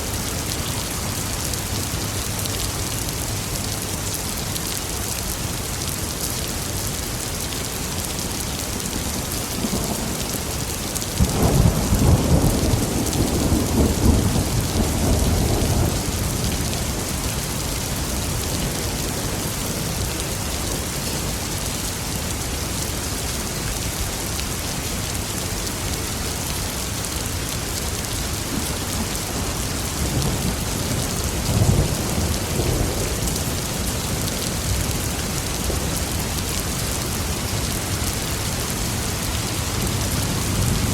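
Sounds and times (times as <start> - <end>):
heavy rain: 0.0 - 40.9
thunder rumbling: 11.2 - 17.2.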